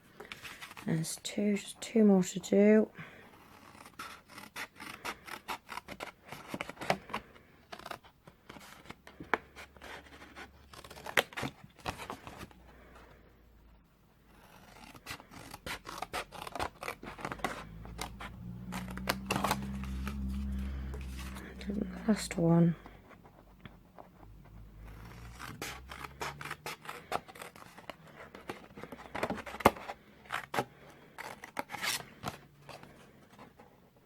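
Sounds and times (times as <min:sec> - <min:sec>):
scissors cutting cardstock: 0:03.4 - 0:09.0, 0:09.7 - 0:12.5, 0:14.3 - 0:22.4, 0:24.4 - 0:32.8.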